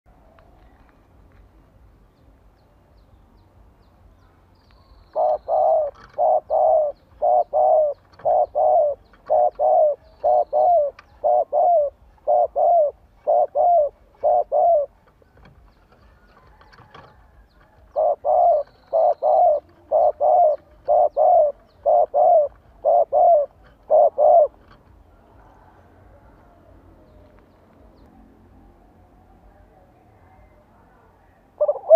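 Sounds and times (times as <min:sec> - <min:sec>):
dove cooing: 0:05.1 - 0:15.2, 0:16.1 - 0:26.9, 0:31.6 - 0:31.9.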